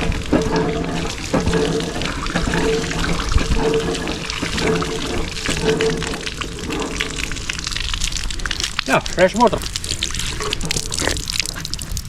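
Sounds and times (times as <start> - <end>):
water gushing and splashing: 0.0 - 12.0
water pump being worked: 0.0 - 12.0.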